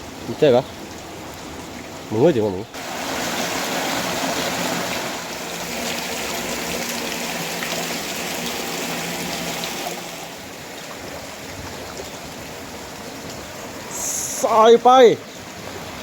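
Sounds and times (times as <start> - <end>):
river water rushing at a weir: 2.8 - 12.9.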